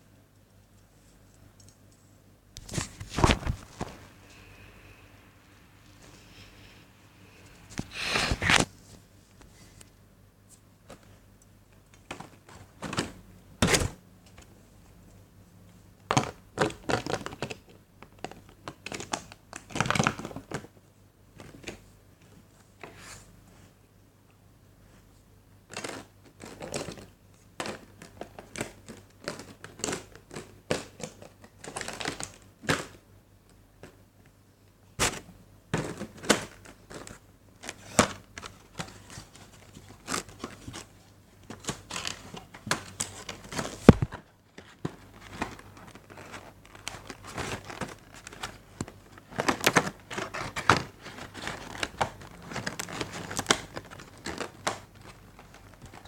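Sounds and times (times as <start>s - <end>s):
plastic wrap crinkling: 2.6s - 4.2s, 35.9s - 56.0s.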